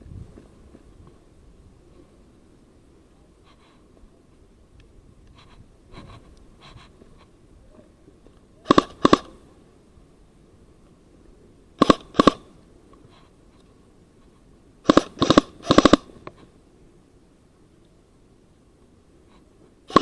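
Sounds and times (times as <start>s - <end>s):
airsoft gun shots: 8.6s - 9.4s, 11.8s - 12.6s, 14.8s - 16.2s.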